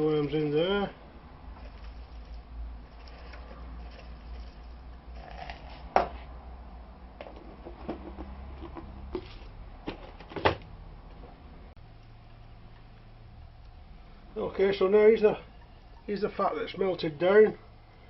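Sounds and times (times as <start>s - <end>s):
low steady hum: 0.0s - 18.0s
containers knocking and clicking: 7.2s - 10.5s.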